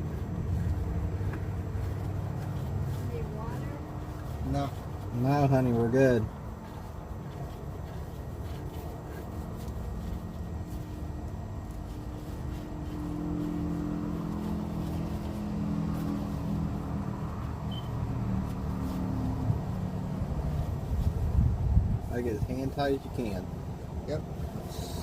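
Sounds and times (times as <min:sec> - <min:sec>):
vehicle engine rumbling: 0:00.0 - 0:25.0.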